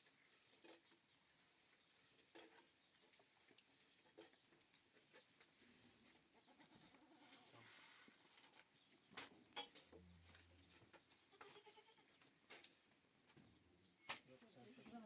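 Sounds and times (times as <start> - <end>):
faint goat bleating: 11.3 - 12.2.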